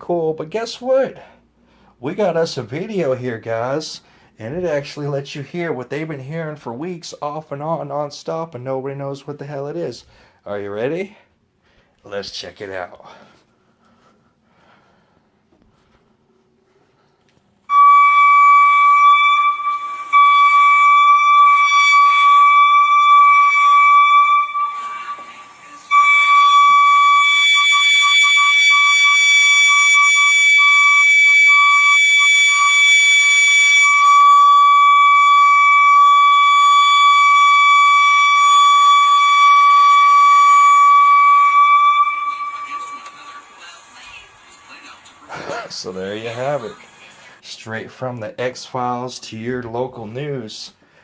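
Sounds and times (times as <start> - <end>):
high-pitched tone: 17.7 - 44.7.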